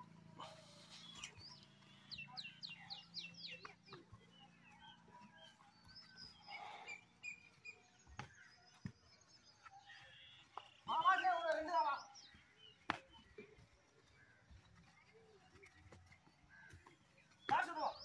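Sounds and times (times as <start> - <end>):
faint birdsong chirps: 0.0 - 18.0.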